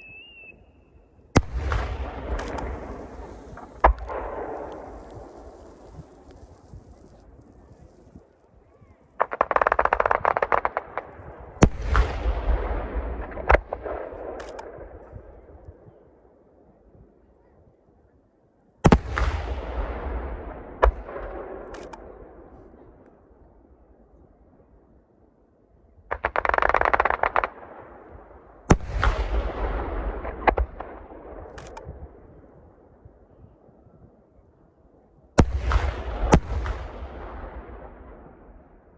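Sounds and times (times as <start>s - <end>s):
fireworks crackling pops: 1.3s - 15.9s, 18.8s - 23.2s, 26.1s - 32.4s, 35.4s - 38.9s.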